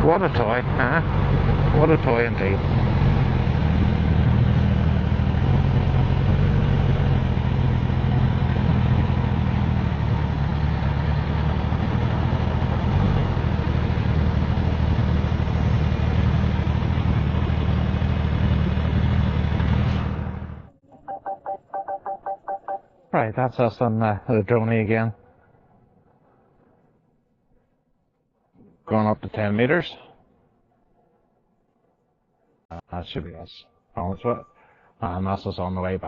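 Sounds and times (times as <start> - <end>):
motorcycle engine running steadily: 0.0 - 20.7.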